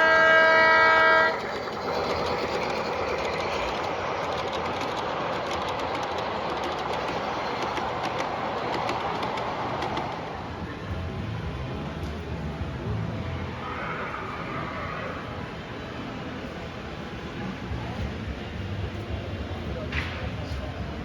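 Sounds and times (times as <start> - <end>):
multi-note train horn: 0.0 - 1.5
train rolling: 0.0 - 21.0
wheels clicking over rail joints: 0.8 - 11.0.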